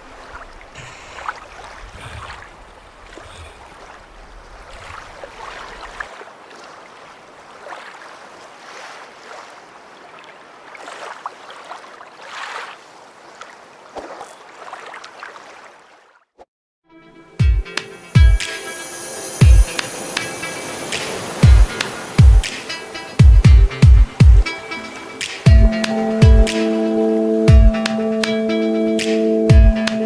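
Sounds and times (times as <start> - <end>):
wind rumbling on microphone: 0.0 - 6.2
water washing: 0.0 - 15.9, 18.4 - 28.0
paddles splashing in water: 0.0 - 16.5, 19.6 - 26.9.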